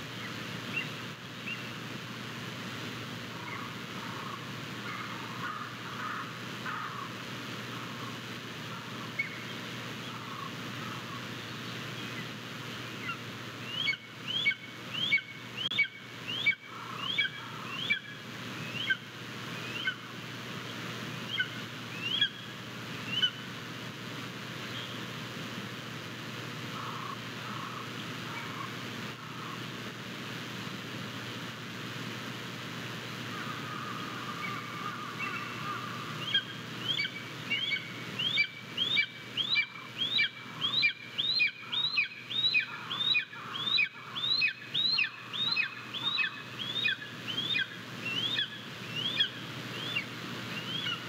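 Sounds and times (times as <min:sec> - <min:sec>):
steady hiss: 0:00.0 - 0:51.0
bird chirping: 0:36.2 - 0:51.0.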